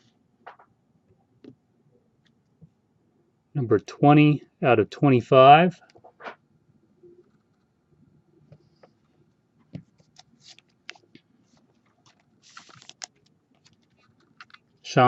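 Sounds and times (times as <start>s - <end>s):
crinkling: 9.9s - 14.9s
cards being shuffled: 10.0s - 14.7s.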